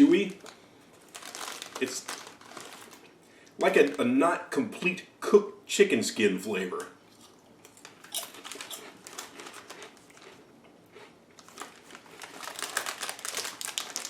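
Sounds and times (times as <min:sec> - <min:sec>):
crisp packet crackling: 0:00.0 - 0:04.1, 0:07.7 - 0:10.4, 0:11.4 - 0:14.0.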